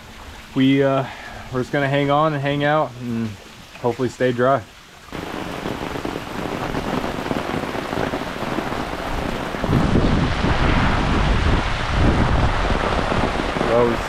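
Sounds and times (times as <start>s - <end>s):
heavy rain falling: 0.4s - 14.0s
wind buffeting microphone: 5.1s - 14.0s.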